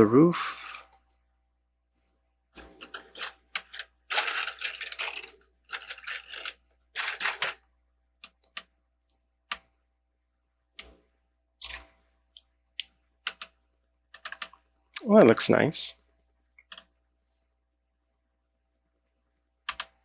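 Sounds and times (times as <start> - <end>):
plastic bricks clattering: 2.6 - 7.6.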